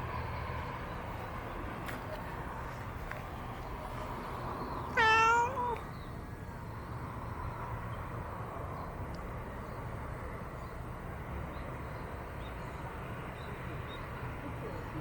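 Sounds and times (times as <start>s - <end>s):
cat meowing: 4.9s - 5.8s.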